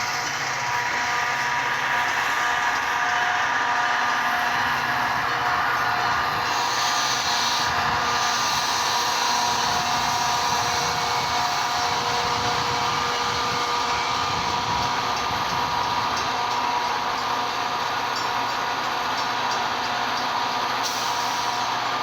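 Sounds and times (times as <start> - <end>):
train wheels rolling on rails: 0.0 - 22.0.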